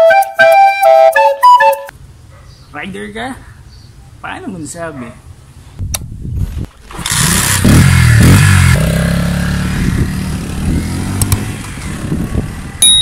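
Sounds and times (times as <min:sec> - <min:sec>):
motorcycle engine starting and revving: 0:06.4 - 0:13.0.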